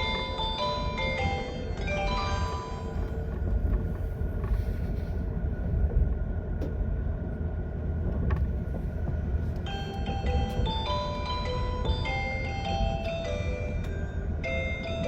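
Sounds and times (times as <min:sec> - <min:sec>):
onboard chime: 0:00.0 - 0:03.1, 0:09.7 - 0:15.0
train rumbling on rails: 0:00.0 - 0:15.0.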